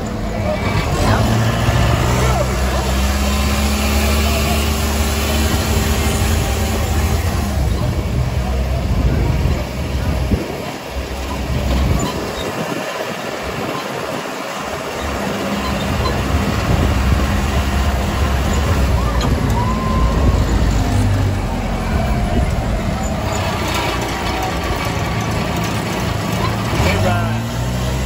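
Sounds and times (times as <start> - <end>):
road and wind noise: 0.0 - 28.0
tram engine hum: 0.0 - 28.0.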